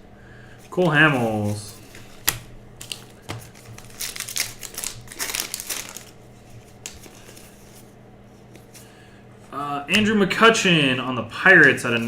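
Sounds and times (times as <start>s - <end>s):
trading cards rustling: 0.7s - 9.0s, 11.5s - 12.0s.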